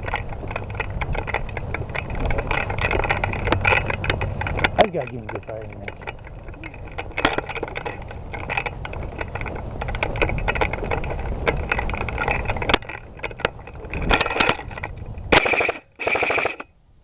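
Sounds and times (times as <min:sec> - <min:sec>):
rustling movement: 0:00.0 - 0:16.7
automatic fire bursts: 0:15.4 - 0:16.7.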